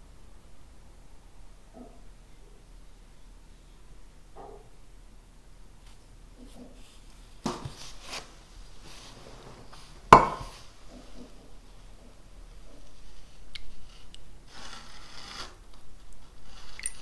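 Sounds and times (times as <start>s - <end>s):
faint rustles: 5.8s - 17.0s
hard objects set down on desk: 7.4s - 8.0s, 9.5s - 10.6s.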